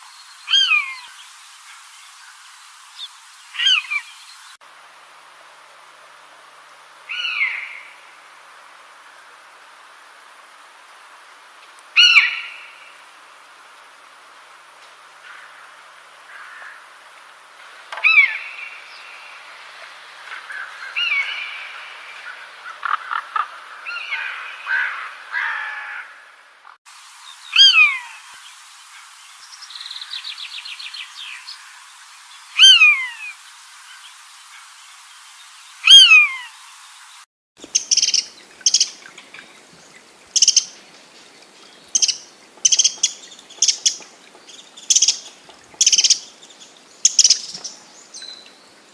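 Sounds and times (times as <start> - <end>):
loud downward sliding bird calls: 0.0 - 1.2, 3.5 - 4.2, 7.1 - 8.0, 12.0 - 12.9, 27.4 - 28.4, 32.5 - 33.4, 35.7 - 36.7, 37.7 - 39.1, 40.4 - 40.8, 41.9 - 44.0, 44.9 - 46.3, 47.0 - 47.7
birds chirping and calling: 3.6 - 4.4, 37.6 - 48.7
short sharp bird calls: 35.8 - 36.6
buzzy bird trill: 37.6 - 39.1, 40.3 - 40.8, 41.9 - 48.4.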